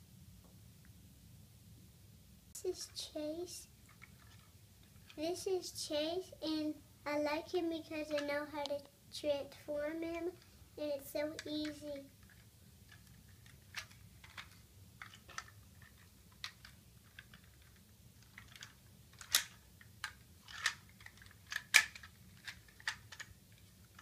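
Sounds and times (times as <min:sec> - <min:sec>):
plastic toy clicking and snapping: 0:11.4 - 0:24.0.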